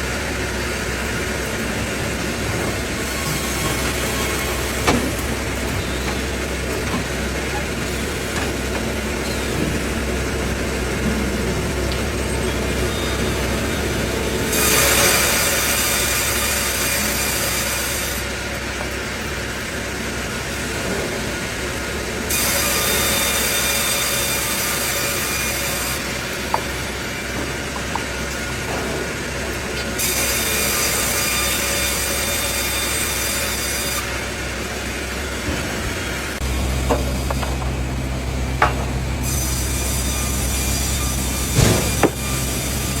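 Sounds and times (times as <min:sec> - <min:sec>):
mill machinery running: 0:00.0 - 0:43.0
saw blade cutting wood: 0:02.5 - 0:09.8, 0:14.5 - 0:18.3, 0:38.6 - 0:43.0.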